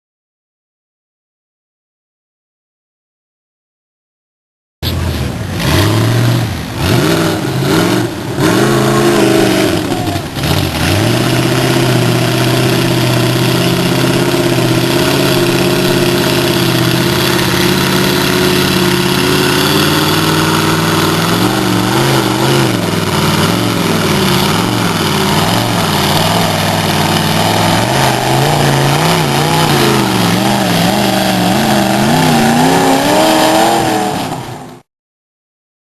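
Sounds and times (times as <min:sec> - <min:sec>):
truck engine revving in mud: 0:04.9 - 0:34.9.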